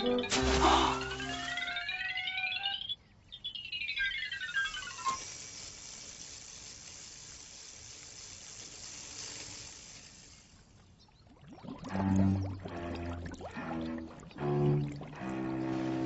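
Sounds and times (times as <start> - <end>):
watery hiss: 0.0 - 1.6, 4.8 - 11.1
descending cartoon tones: 0.0 - 5.2.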